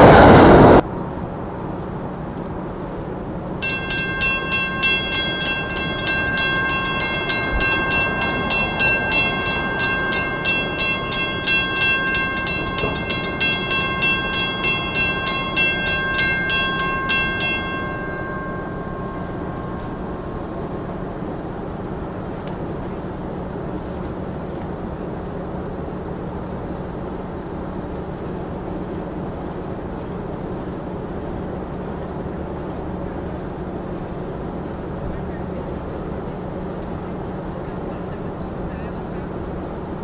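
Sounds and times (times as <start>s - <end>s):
train rumbling: 0.0s - 40.0s
level crossing bell ringing: 3.6s - 22.6s.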